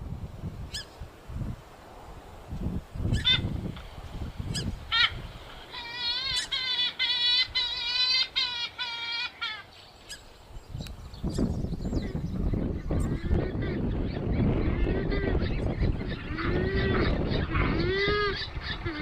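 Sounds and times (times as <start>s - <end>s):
waterbird nasal calls: 4.5s - 10.2s.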